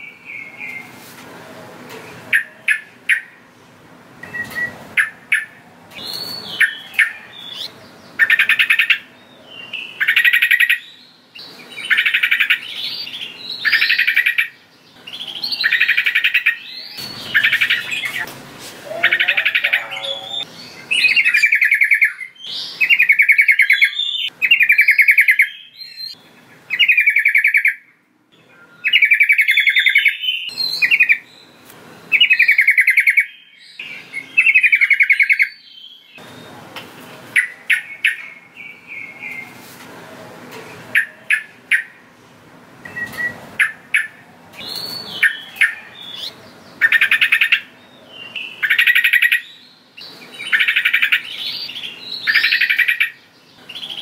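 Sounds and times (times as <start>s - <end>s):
bulbul calling: 2.3s - 3.4s, 4.2s - 27.8s, 32.1s - 36.4s, 40.9s - 42.0s, 42.9s - 47.8s, 48.4s - 54.0s.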